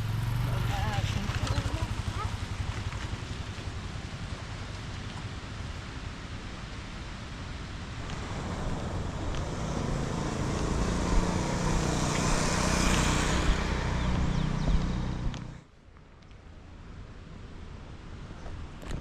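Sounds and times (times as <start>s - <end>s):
vehicle engine running: 0.0s - 4.4s, 8.0s - 15.7s.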